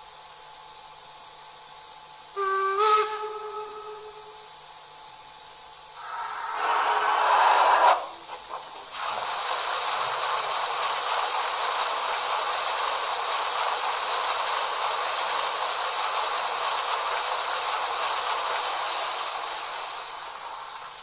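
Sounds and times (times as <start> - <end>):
loud sound from model locomotive: 2.3 - 4.6, 6.0 - 9.4
steam hissing: 2.3 - 4.9, 5.9 - 21.0.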